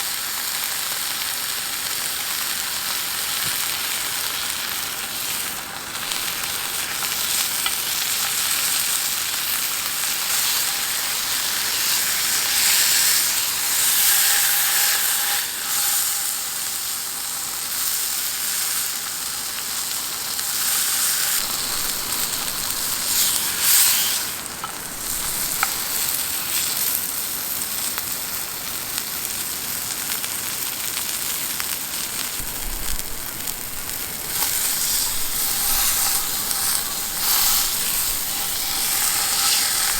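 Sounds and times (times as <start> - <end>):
beef sizzling in a pan: 0.0 - 39.9.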